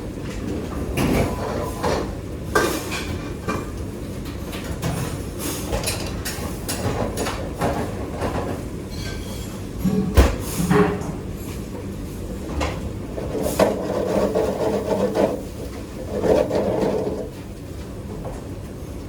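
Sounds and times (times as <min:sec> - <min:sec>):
utensils knocking and scraping: 0:12.6 - 0:17.3.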